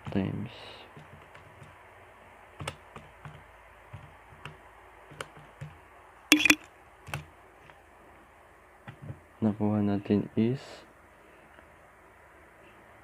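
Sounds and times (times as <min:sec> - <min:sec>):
key presses clicking: 0:06.3 - 0:06.6.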